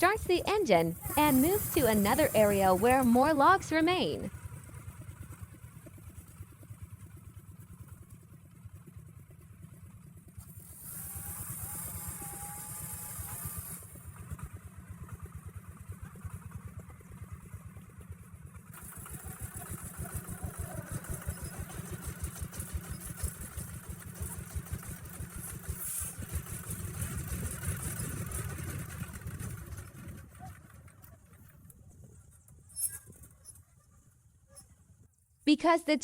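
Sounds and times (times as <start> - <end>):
truck engine chugging: 0.0 - 7.9, 14.1 - 33.8.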